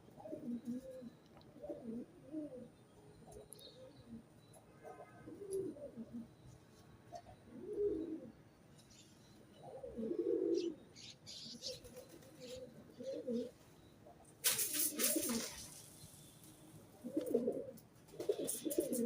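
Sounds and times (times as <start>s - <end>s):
pigeons cooing: 0.0s - 6.5s, 7.1s - 8.5s, 9.6s - 16.3s, 16.9s - 19.0s
small birds chirping: 2.6s - 4.7s, 8.2s - 17.4s.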